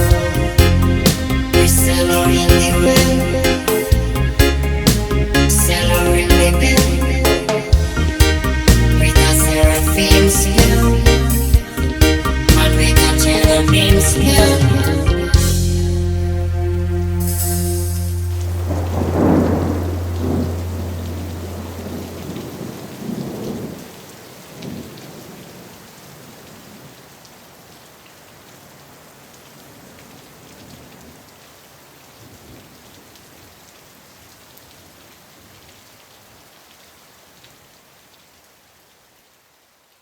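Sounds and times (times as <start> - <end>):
steady rain: 0.0 - 40.0
thunder rumbling: 18.2 - 25.7.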